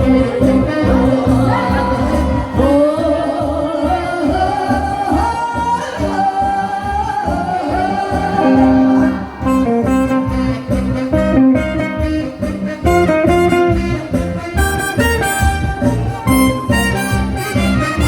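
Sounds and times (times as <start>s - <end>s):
person singing long sliding notes: 0.0s - 10.6s
backing band with steady beat: 0.0s - 18.0s.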